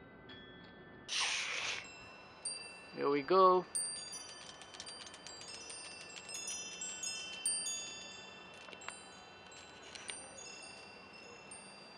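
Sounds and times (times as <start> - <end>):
wind chime ringing: 0.2 - 11.9.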